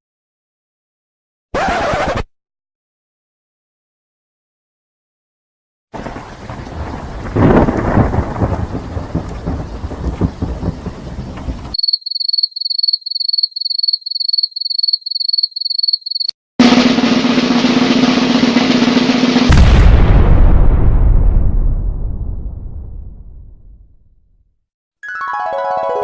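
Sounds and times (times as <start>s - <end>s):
loud thunder clap: 6.0s - 11.8s, 16.6s - 24.0s
steady rain: 6.0s - 11.8s.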